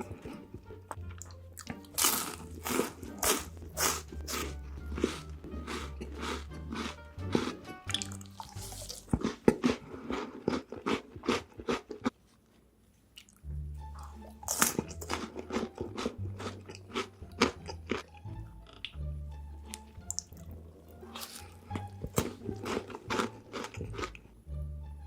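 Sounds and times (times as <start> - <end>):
background music with bass: 0.0 - 9.3, 13.4 - 25.0
crunching and chewing food: 0.0 - 19.0, 19.6 - 24.4.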